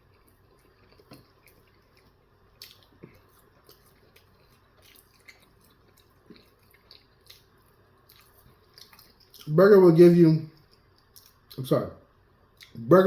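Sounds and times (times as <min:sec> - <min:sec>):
wet chewing: 0:00.0 - 0:09.5
mouth clicks and smacks: 0:02.6 - 0:07.5, 0:10.6 - 0:11.6, 0:12.6 - 0:12.8.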